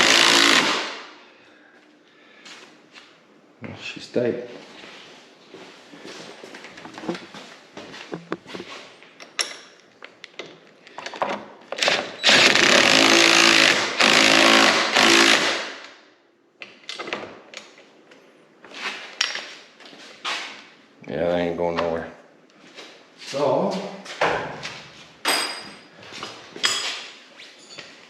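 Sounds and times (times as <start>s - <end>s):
impact wrench hammering: 0.0s - 1.1s.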